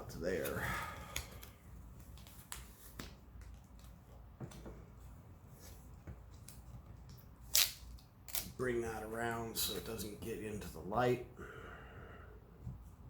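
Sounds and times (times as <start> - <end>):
clicks and rustles of tape: 1.1 - 4.6, 6.1 - 8.6.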